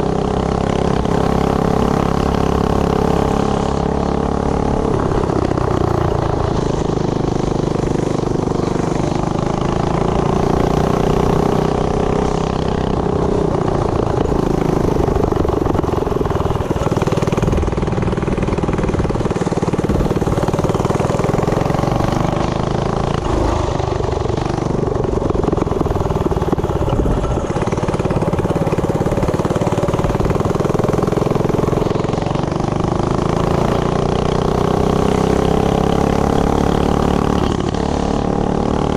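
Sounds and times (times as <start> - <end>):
mini bike engine revving: 0.0 - 38.9.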